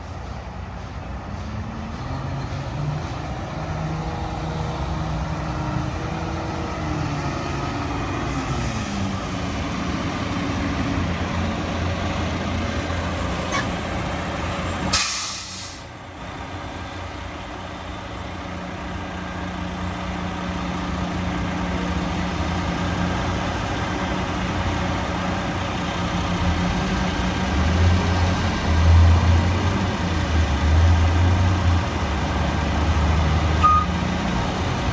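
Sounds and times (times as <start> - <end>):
garbage truck engine running: 3.1 - 34.9
air brake hiss: 14.9 - 15.9.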